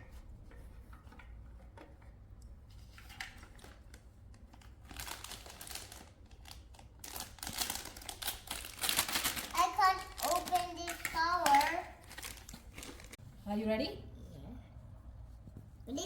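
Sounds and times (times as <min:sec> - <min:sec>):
plastic packaging crinkling: 0:03.6 - 0:13.2.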